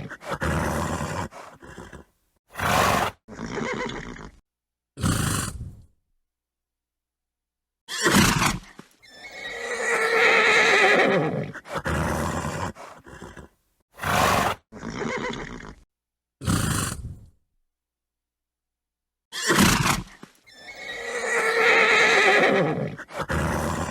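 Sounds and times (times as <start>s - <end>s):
horse snorting: 0.0s - 4.4s, 5.0s - 5.8s, 8.0s - 15.8s, 16.4s - 17.3s, 19.4s - 23.9s
horse whinnying: 0.0s - 4.4s, 7.9s - 15.8s, 19.3s - 23.9s.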